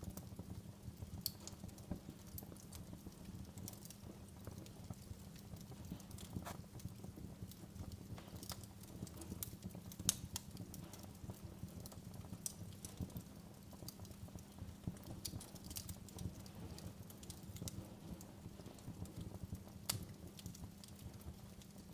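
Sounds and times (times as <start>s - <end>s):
wood fire crackling: 0.0s - 21.9s.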